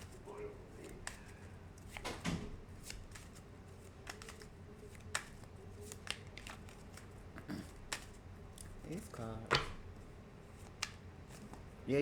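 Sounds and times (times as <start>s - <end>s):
cards being shuffled: 0.8s - 9.8s, 10.5s - 11.7s.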